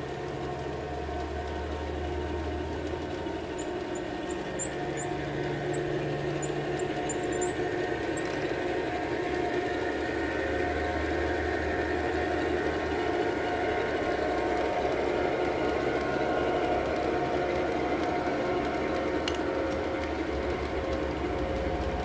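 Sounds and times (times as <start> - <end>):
diesel engine drone: 0.0 - 22.0.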